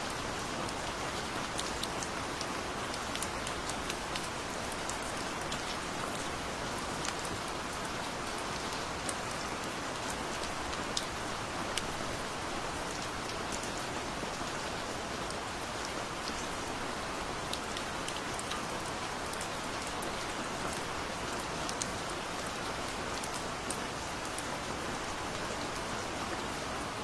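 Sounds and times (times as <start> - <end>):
rain drops on hard surface: 0.0 - 27.0.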